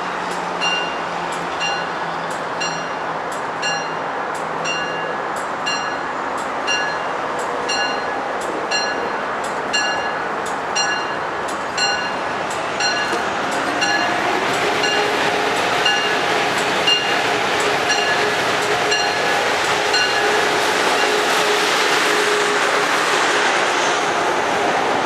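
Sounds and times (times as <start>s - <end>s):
train rumbling: 0.0s - 25.0s
bell ringing: 4.6s - 6.1s, 7.7s - 10.2s, 10.8s - 11.2s, 11.8s - 12.2s, 12.8s - 13.2s.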